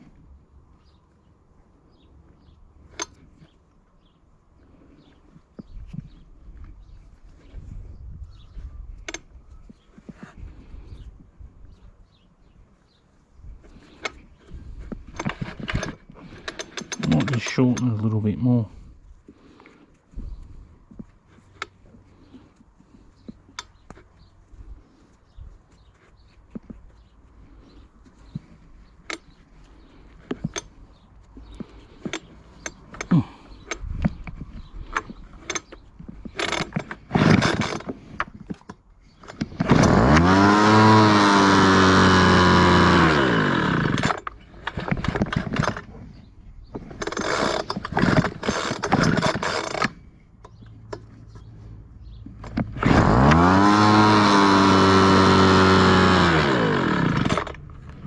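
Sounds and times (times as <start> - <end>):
starter cord pulls: 2.8 - 3.6, 13.6 - 18.4, 27.5 - 51.5, 52.2 - 58.0
pull starter clicks and rattles: 14.0 - 18.2, 31.5 - 46.0, 46.7 - 51.1, 52.3 - 58.0
leaf blower engine running: 29.7 - 33.6, 36.2 - 38.2, 39.2 - 46.0, 46.8 - 50.0, 52.4 - 58.0.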